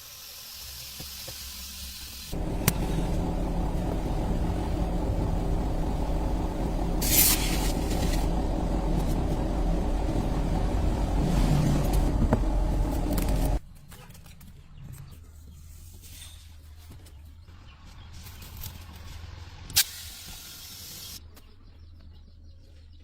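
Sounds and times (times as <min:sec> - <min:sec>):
car engine rumbling: 0:02.3 - 0:13.6.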